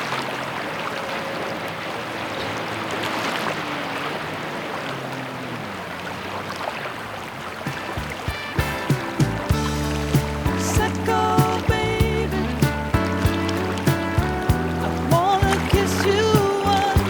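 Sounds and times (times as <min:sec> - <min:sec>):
steady rain hiss: 0:07.7 - 0:17.0.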